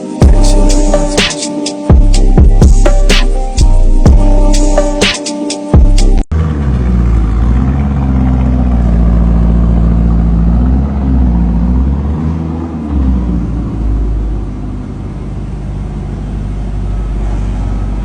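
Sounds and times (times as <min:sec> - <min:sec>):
car engine running: 0:05.8 - 0:18.0.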